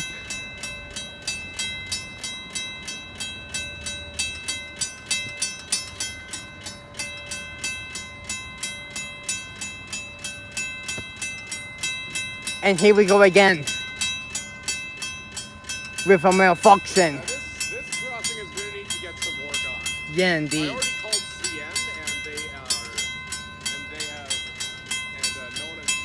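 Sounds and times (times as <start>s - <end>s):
level crossing bell ringing: 0.0s - 26.0s.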